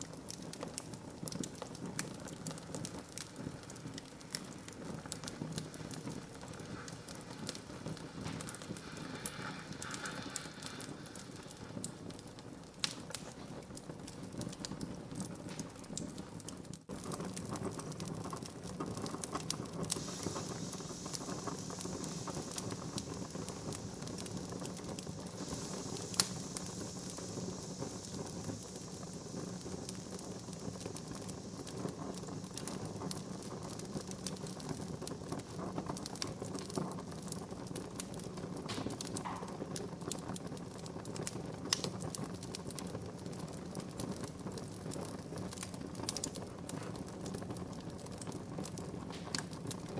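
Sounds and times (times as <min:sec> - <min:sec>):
wood fire crackling: 0:00.0 - 0:49.9
sharp loud pop: 0:38.7 - 0:39.6.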